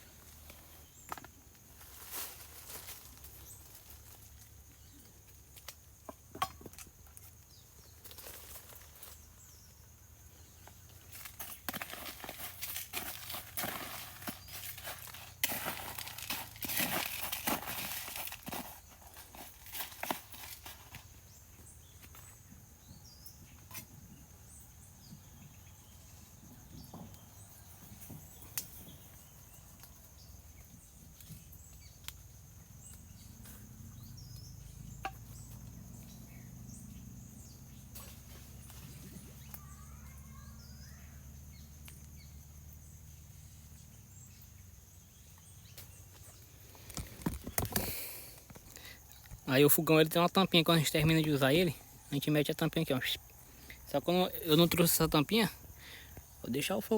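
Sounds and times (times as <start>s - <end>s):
bird chirps: 24.5s - 46.4s.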